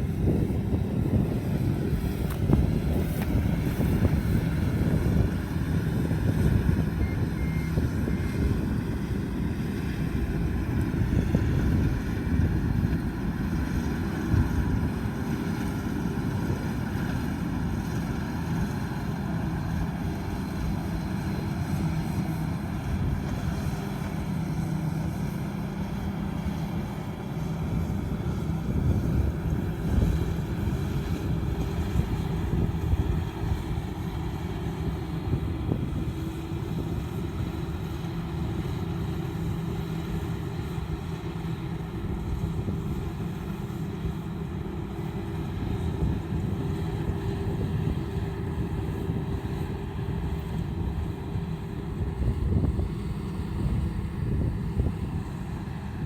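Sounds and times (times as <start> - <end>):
combine harvester engine drone: 0.0 - 56.0
short high beeps: 7.0 - 7.7.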